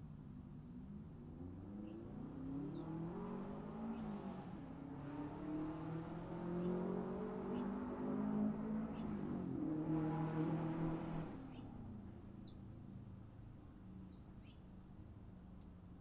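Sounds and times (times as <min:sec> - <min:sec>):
faint bird chirps: 0:12.4 - 0:12.6.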